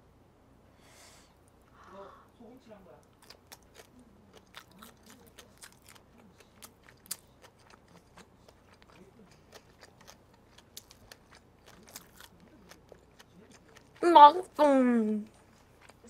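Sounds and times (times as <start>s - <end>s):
chewing crunchy food: 3.0s - 14.0s, 15.3s - 16.0s.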